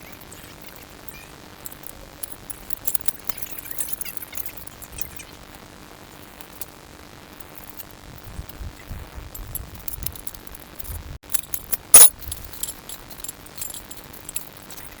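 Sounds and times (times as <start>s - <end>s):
small metal objects jangling: 0.0s - 5.2s, 9.3s - 15.0s.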